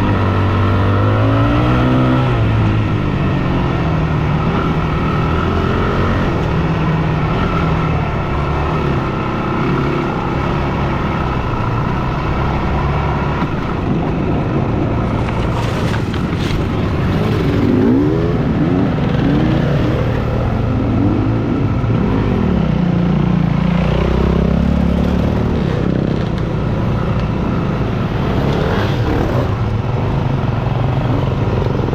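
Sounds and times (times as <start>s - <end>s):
dirt bike engine revving: 16.6s - 26.2s.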